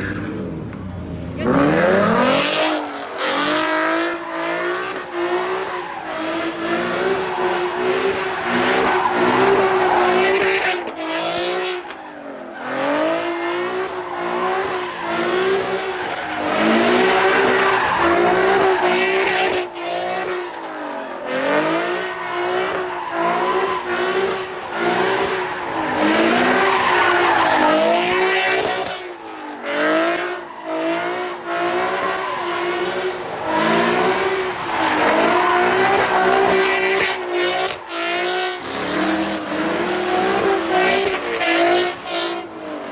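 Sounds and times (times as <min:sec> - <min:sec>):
car engine revving: 0:00.0 - 0:42.9
tyre squeal: 0:02.1 - 0:13.0, 0:21.9 - 0:29.1.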